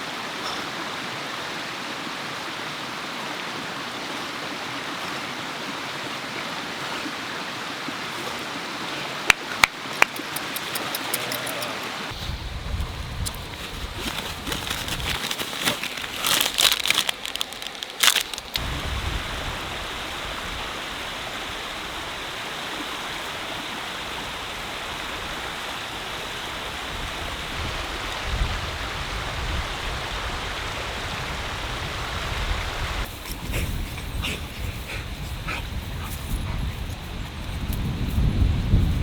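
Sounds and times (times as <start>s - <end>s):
steady rain: 11.7s - 33.1s
wind buffeting microphone: 12.0s - 15.3s, 17.3s - 22.3s, 24.1s - 39.0s
sharp crackles: 14.0s - 18.7s.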